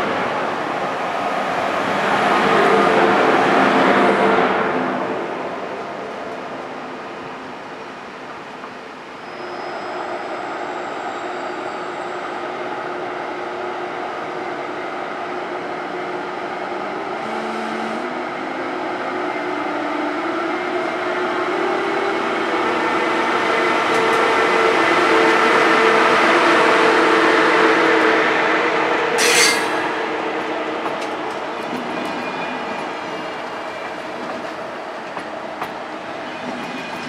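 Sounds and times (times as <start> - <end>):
train passing platform: 0.0 - 37.0
electric train whine: 8.8 - 37.0.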